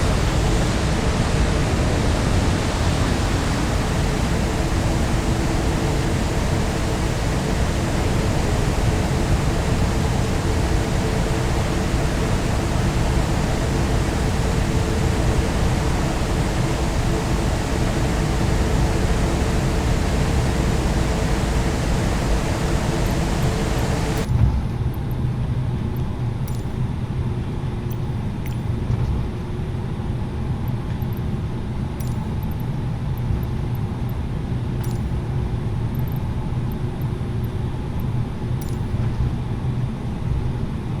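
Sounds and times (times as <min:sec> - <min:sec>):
low rumble: 0:00.0 - 0:24.3
aircraft cabin engine noise: 0:00.0 - 0:24.5.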